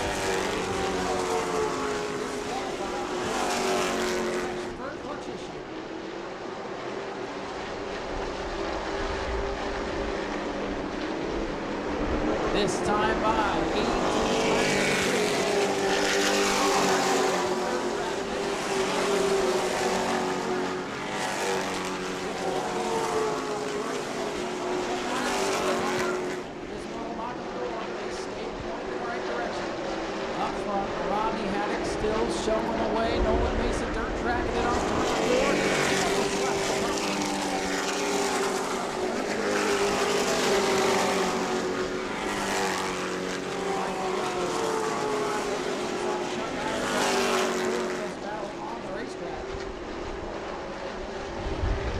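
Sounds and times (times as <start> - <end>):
racing truck engines passing: 0.0 - 51.9.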